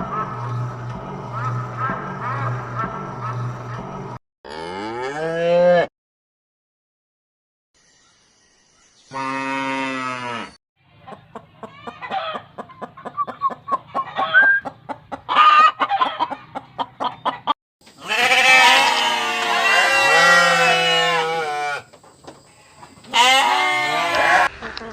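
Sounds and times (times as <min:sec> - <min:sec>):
chickens clucking: 0:00.0 - 0:04.2, 0:10.9 - 0:17.6
loud wavering bleating: 0:18.0 - 0:21.9, 0:22.6 - 0:24.5.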